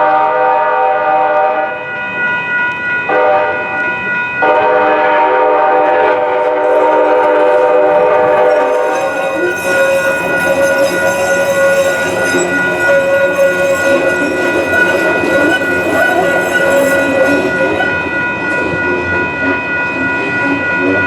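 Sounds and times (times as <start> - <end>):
train horn: 0.0 - 1.8, 3.1 - 3.7, 4.4 - 18.2
train rumbling past: 0.0 - 21.0
high ringing tones: 1.6 - 21.0.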